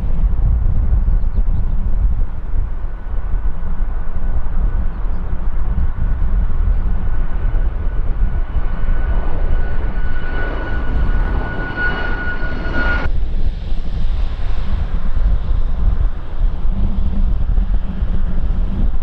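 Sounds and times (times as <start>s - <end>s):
wind rumble on microphone: 0.0s - 19.0s
jet engines whining: 5.3s - 19.0s.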